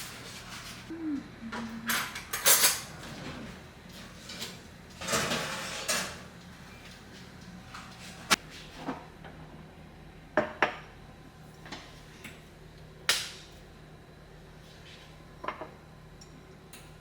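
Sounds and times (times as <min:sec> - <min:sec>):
pans and utensils clattering: 0:01.9 - 0:03.5, 0:04.2 - 0:06.3.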